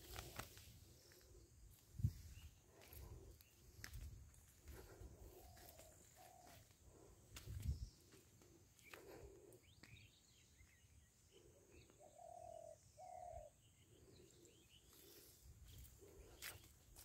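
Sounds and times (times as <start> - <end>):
distant bird chirps: 1.0 - 17.0
low bird coos: 4.6 - 16.7.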